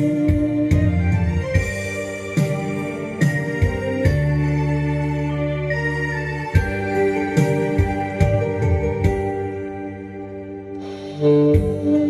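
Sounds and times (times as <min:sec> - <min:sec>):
saxophone duet: 0:00.0 - 0:08.1, 0:10.7 - 0:12.0
organ-like keyboard: 0:00.0 - 0:12.0
drum beat: 0:00.3 - 0:04.4, 0:11.4 - 0:12.0.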